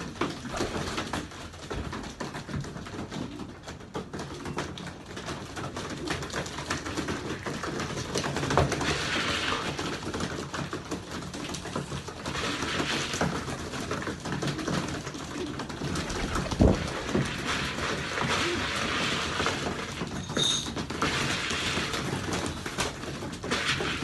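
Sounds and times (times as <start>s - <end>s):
rustling flurries: 7.0s - 20.2s
pigeons cooing: 13.9s - 20.0s.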